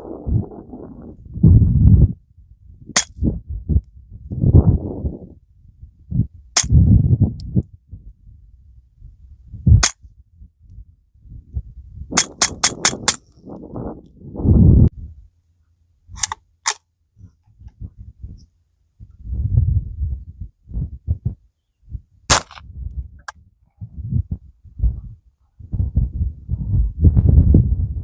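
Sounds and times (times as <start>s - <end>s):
dull low thumps: 0.0s - 15.3s, 17.2s - 28.0s
suppressed gunshots: 12.2s - 13.2s, 22.3s - 22.6s.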